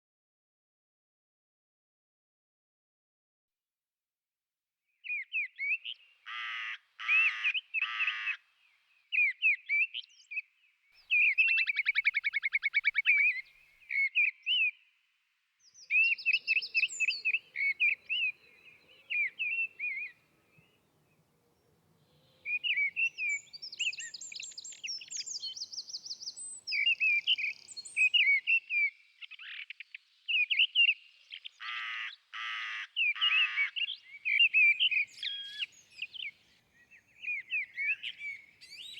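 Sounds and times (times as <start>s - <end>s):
whimbrels calling: 11.0s - 14.3s, 15.9s - 28.4s, 31.5s - 38.9s
short bird chirps: 22.0s - 31.5s, 33.0s - 38.9s.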